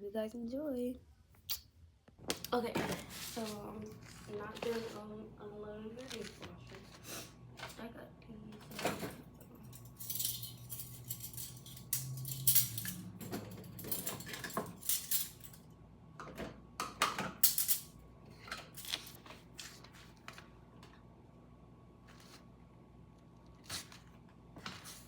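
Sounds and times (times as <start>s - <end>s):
dishes and silverware clinking: 8.7s - 15.6s.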